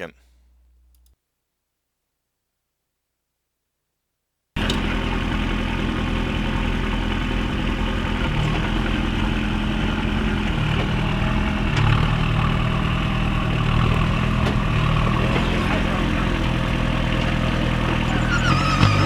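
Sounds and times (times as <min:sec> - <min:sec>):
diesel engine at low revs: 0:04.6 - 0:19.0.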